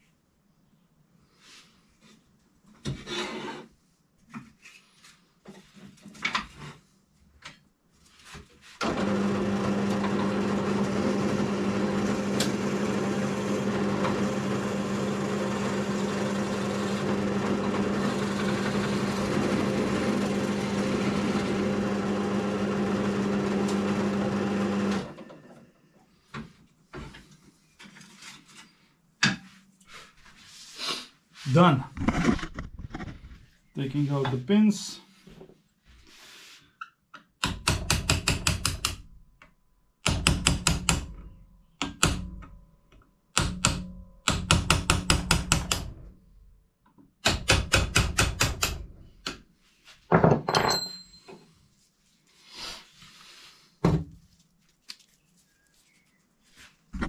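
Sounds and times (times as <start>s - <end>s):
drill press motor humming: 8.8s - 25.2s.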